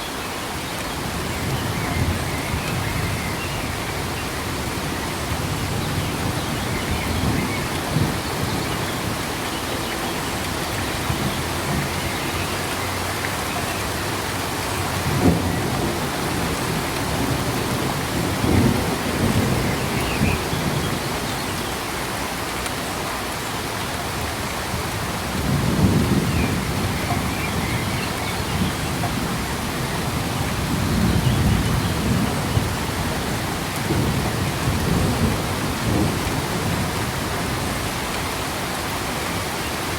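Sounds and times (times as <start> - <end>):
steady rain: 0.0 - 39.9
thunder rumbling: 13.8 - 21.3.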